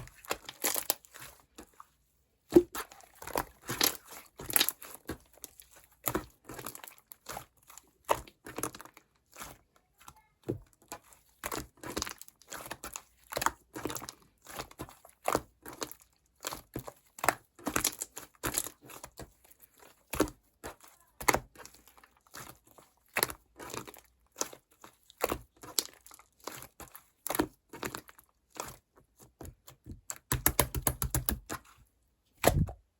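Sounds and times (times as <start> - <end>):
slime squishing and popping: 0.1 - 1.2, 2.5 - 8.9, 20.1 - 31.7, 32.4 - 32.9.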